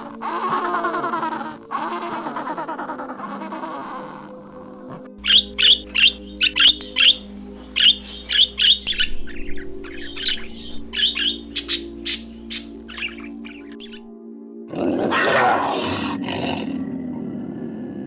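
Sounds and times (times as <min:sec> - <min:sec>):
bird squawking: 0:00.0 - 0:04.5, 0:05.2 - 0:14.1
low background tones: 0:00.0 - 0:14.1.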